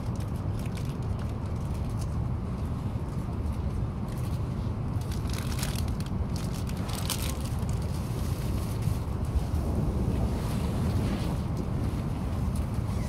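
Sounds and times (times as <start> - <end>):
crackling rustles: 0.0 - 13.0
train cabin rumble: 0.0 - 13.0.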